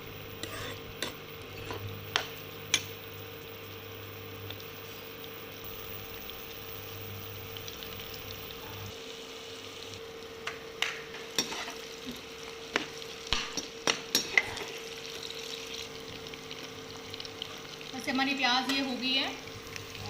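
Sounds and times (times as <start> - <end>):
onions sizzling in a pan: 0.0 - 20.0
spatula scraping a pan: 0.4 - 1.8, 11.3 - 11.9.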